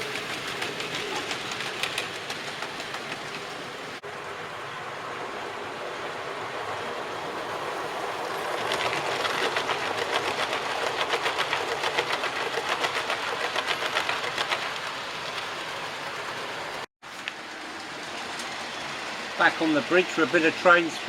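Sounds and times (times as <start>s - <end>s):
model train wheels clicking: 0.0s - 4.0s, 7.9s - 18.6s.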